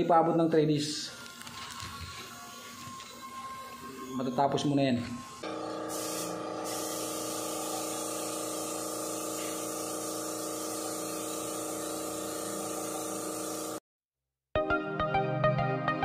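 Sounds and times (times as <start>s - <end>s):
air supply hum: 0.1s - 13.8s
spray gun hissing: 5.4s - 13.8s.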